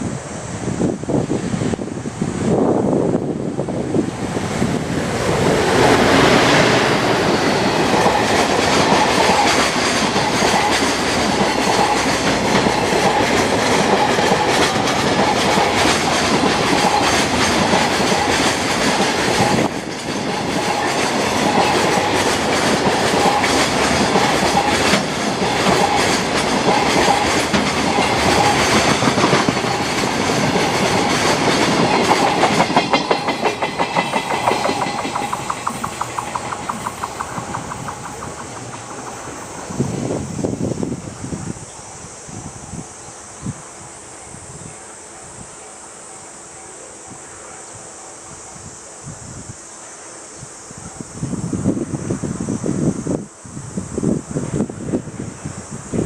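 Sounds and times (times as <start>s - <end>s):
freight train passing: 0.0s - 56.0s
rail roar: 0.0s - 56.0s
wheels clicking over rail joints: 4.6s - 40.8s.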